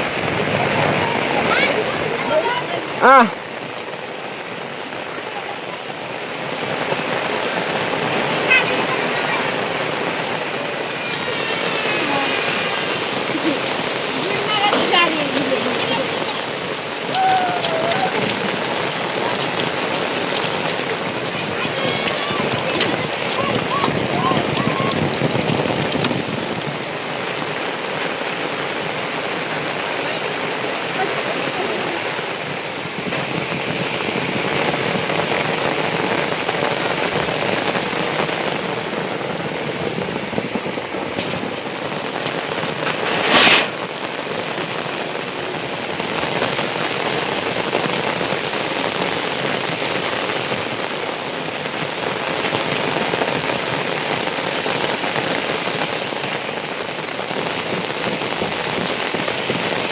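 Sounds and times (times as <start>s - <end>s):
heavy rain falling: 0.0s - 59.9s
loud sharp sound: 42.7s - 44.0s.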